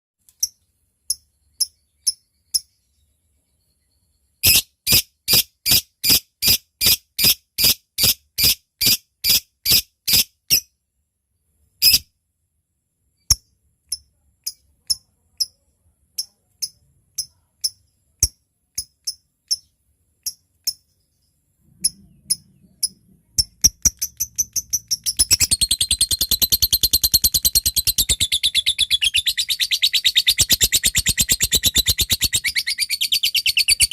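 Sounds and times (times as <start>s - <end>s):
lovebird chipping call: 21.8s - 33.9s
lovebird fast chatter: 21.8s - 33.9s.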